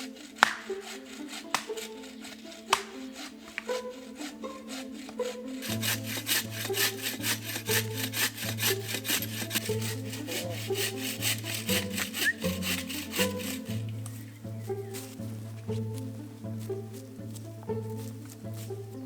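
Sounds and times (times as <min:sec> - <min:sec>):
hand saw cutting wood: 0:00.0 - 0:19.0
background music with bass: 0:01.0 - 0:19.0.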